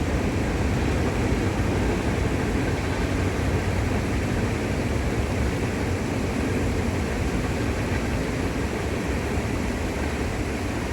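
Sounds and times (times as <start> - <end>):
train rumbling on bridge: 0.0 - 7.9.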